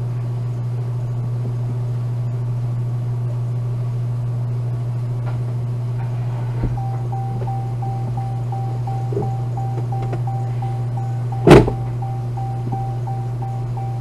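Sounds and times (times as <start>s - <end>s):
car engine idling: 6.0s - 14.0s
electronic warning chime: 6.8s - 14.0s
thump: 11.5s - 11.8s.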